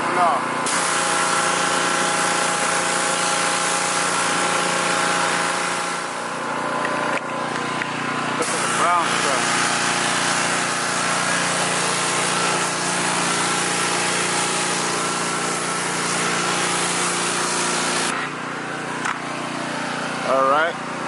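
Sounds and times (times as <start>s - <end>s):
pressure washer engine running: 0.0s - 21.0s
water spraying onto tire: 0.7s - 7.1s, 8.4s - 18.3s.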